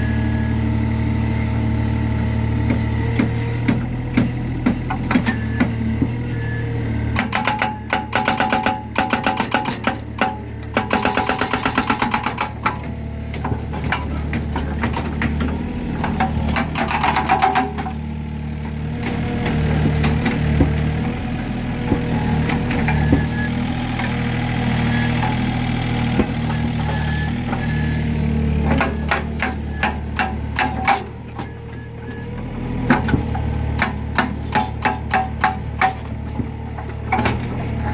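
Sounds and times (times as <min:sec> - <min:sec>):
excavator engine running: 0:00.0 - 0:37.9
hydraulic breaker hammering concrete: 0:07.1 - 0:24.4, 0:25.1 - 0:31.7, 0:32.4 - 0:37.9.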